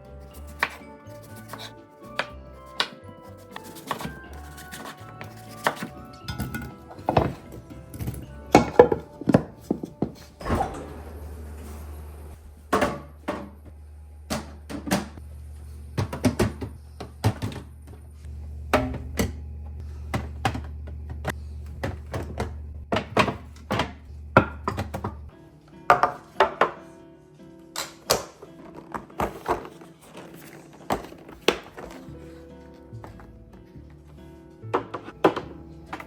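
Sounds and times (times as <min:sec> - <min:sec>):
plastic bins knocking on shelves: 0:03.8 - 0:10.4, 0:12.6 - 0:15.2, 0:15.9 - 0:18.0, 0:20.0 - 0:25.3, 0:34.7 - 0:36.0
low steady hum: 0:04.5 - 0:25.5.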